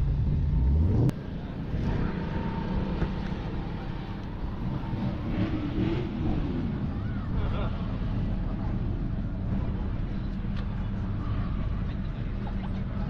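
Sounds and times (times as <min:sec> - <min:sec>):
loud low engine rumble: 0:00.0 - 0:13.0
vehicle engine running: 0:00.0 - 0:13.0
faint voices: 0:01.1 - 0:13.0.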